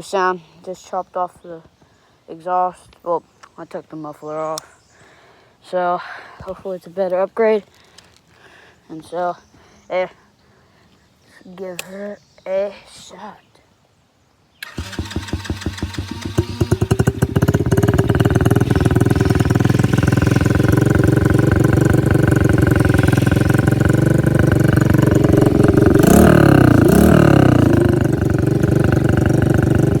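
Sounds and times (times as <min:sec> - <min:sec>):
engine revving: 0:14.6 - 0:30.0
open exhaust engine idling: 0:14.6 - 0:30.0.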